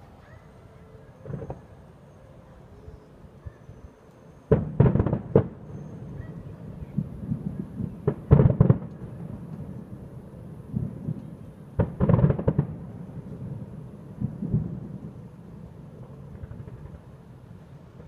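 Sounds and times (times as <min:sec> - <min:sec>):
distant fireworks booms: 0:01.1 - 0:01.9, 0:04.5 - 0:17.3
rapid firework bangs: 0:04.5 - 0:05.6, 0:07.4 - 0:09.0, 0:11.8 - 0:12.8.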